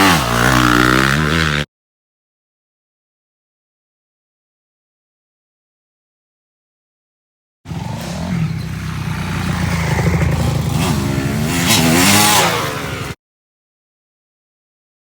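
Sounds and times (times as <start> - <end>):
motorcycle engine revving: 0.0 - 1.7, 7.7 - 13.2.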